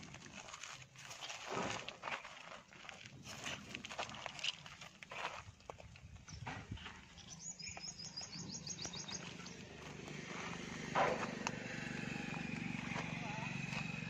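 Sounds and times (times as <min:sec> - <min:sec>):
bird trilling high chirps: 0:07.2 - 0:09.6.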